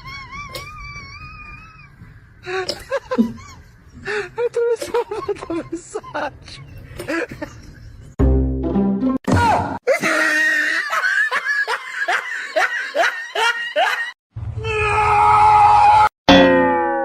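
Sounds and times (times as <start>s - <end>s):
bursts of laughter: 9.9s - 14.2s.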